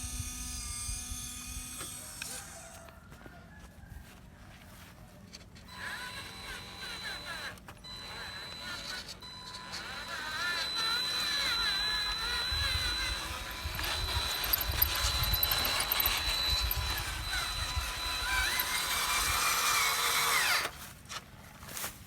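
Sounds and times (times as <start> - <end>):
electric motors whining: 0.0 - 2.9, 5.3 - 20.8
steady high tone: 9.2 - 19.5.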